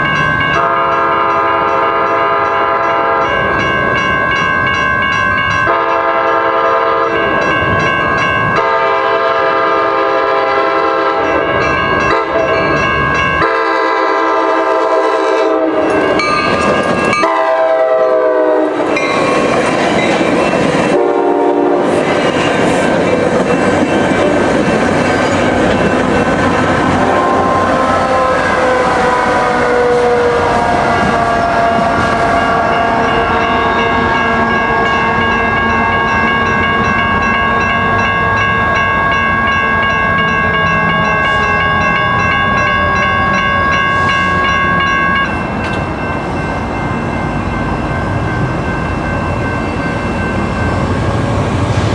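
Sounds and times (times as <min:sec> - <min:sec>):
train rumbling and clattering: 0:00.0 - 0:51.9
train horn blasts: 0:00.6 - 0:03.4, 0:05.7 - 0:07.2, 0:08.6 - 0:11.4, 0:12.1 - 0:12.5, 0:13.4 - 0:16.0, 0:17.2 - 0:19.0, 0:20.9 - 0:22.0, 0:26.9 - 0:36.2.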